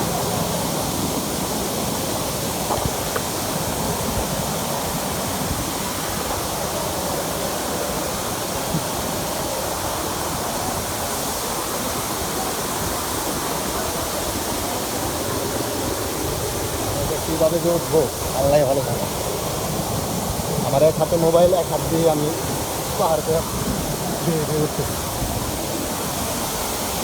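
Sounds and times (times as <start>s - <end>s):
waterfall rushing over rock: 0.0s - 27.0s.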